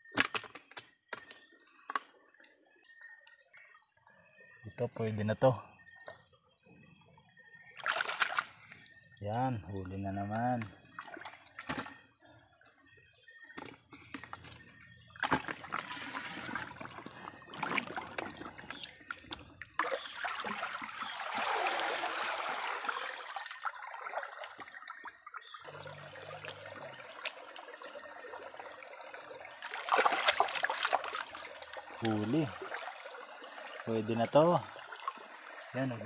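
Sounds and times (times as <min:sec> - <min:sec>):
creek water trickling and sloshing: 0:01.2 - 0:36.0
water splashes: 0:07.8 - 0:12.0, 0:15.1 - 0:36.0.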